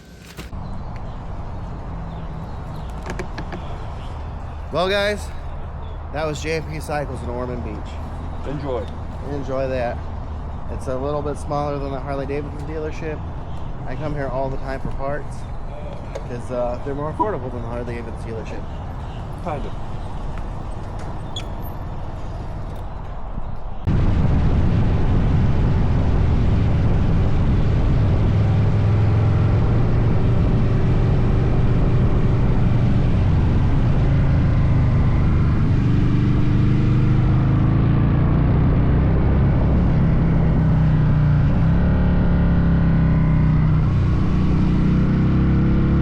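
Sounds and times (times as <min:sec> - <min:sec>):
vehicle engine running: 0:00.0 - 0:23.0
road noise: 0:00.0 - 0:46.0.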